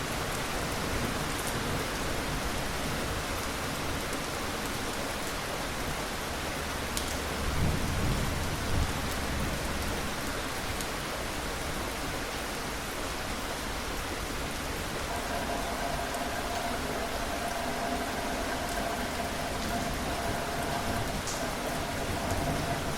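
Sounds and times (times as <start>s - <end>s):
rain falling: 0.0s - 22.9s
thunder rumbling: 15.1s - 22.9s.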